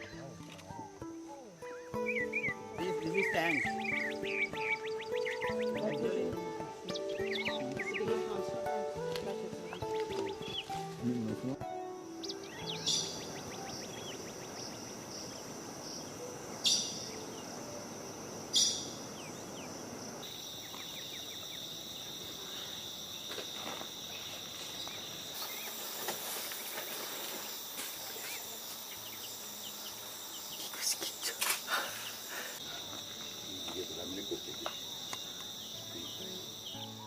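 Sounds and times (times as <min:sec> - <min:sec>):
insects droning high: 0:00.0 - 0:37.0
faint chirps: 0:27.3 - 0:37.0.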